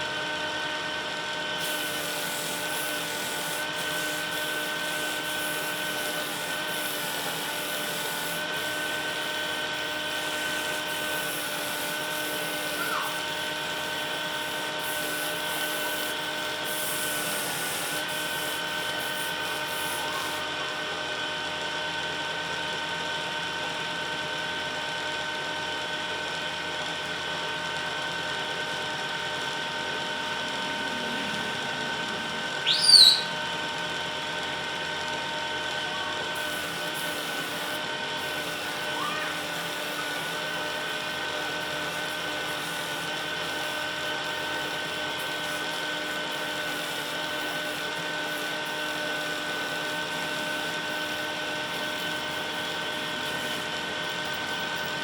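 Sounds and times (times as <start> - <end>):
lathe motor whining: 0.0 - 55.0
short rising screech: 30.4 - 33.7.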